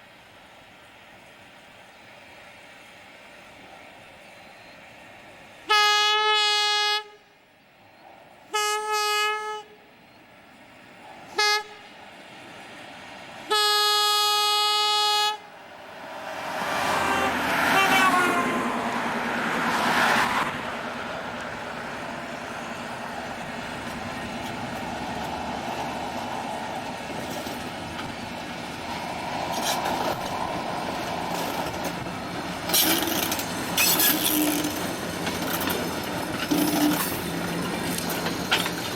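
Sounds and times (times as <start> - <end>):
train rolling past: 0.0 - 38.9
locomotive horn: 5.7 - 7.3, 8.5 - 9.9, 11.3 - 11.9, 13.5 - 15.5, 16.6 - 19.0
clicking train wheels: 20.1 - 38.9.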